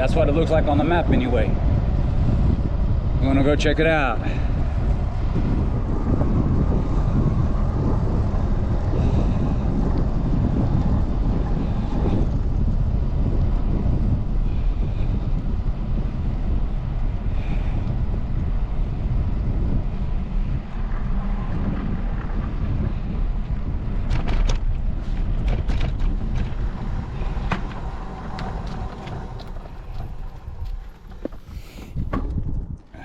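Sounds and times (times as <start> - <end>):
wind buffeting microphone: 0.0 - 33.0
sharp clicks and knocks: 24.0 - 32.9.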